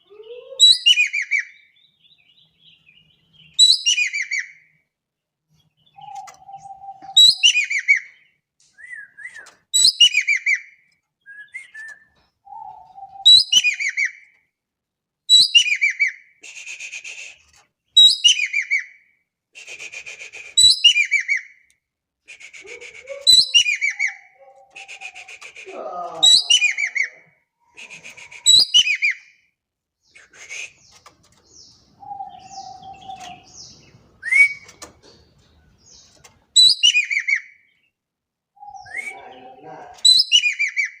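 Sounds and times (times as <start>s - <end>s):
bird calling: 5.8s - 14.2s, 22.3s - 29.3s, 30.0s - 37.8s, 38.6s - 41.0s.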